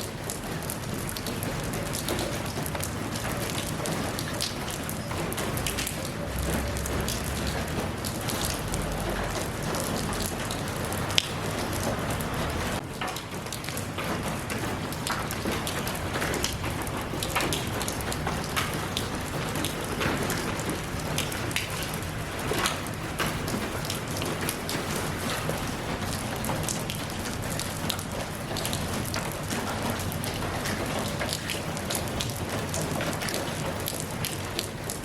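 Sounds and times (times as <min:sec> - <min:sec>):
rain falling: 0:00.0 - 0:35.0.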